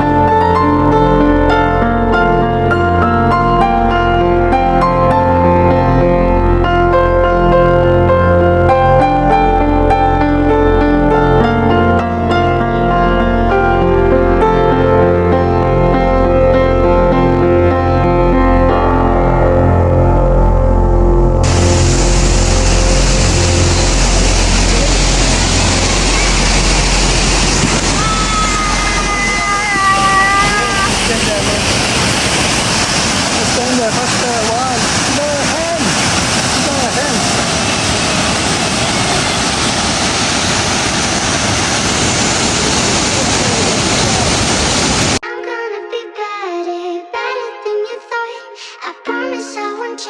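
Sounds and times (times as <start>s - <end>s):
loud rushing with low rumble: 21.4s - 29.1s
steady loud rushing noise: 21.4s - 45.2s.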